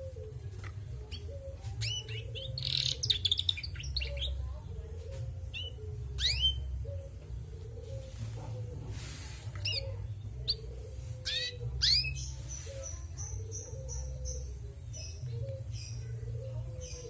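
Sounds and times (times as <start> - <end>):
canary chirping: 1.0 - 7.2, 9.5 - 17.0.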